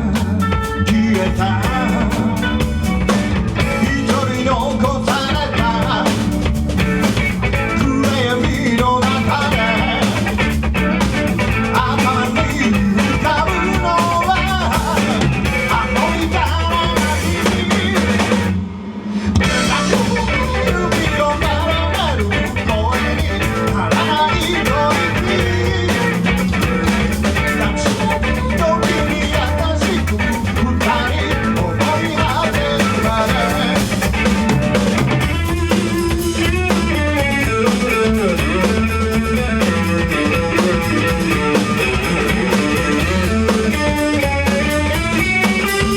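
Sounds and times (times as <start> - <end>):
rock band playing instrumental: 0.0 - 18.6, 19.2 - 45.9.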